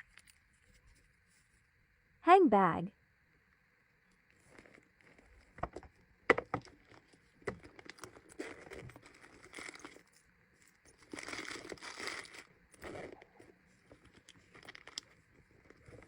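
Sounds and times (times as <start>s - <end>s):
packaging crinkling: 10.9s - 13.2s.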